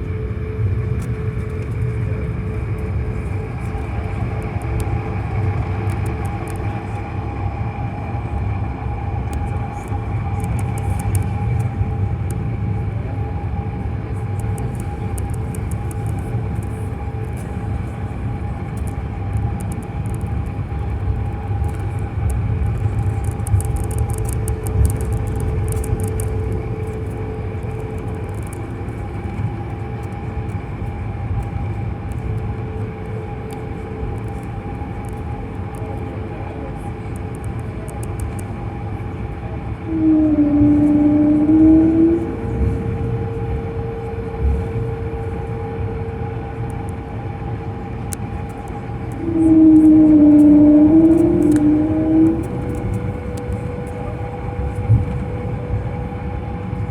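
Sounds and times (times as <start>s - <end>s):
jet engines in aircraft cabin: 0.0s - 56.9s
faint clicks and rattles: 14.1s - 18.0s, 18.6s - 31.5s.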